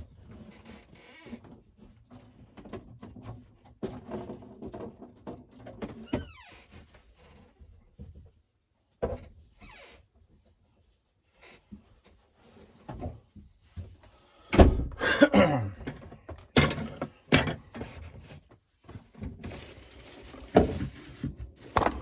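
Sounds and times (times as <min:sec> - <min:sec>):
rustling and scraping: 0:06.6 - 0:14.2, 0:17.6 - 0:22.0.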